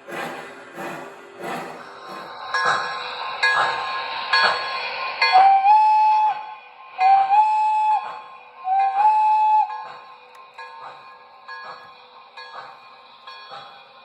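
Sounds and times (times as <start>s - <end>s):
model train whistle blasts: 5.3s - 9.9s.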